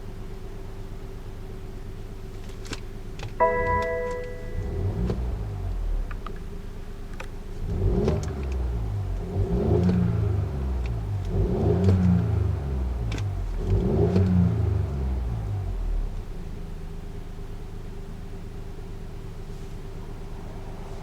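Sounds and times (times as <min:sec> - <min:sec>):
car engine revving: 0:04.3 - 0:06.2, 0:07.5 - 0:16.0.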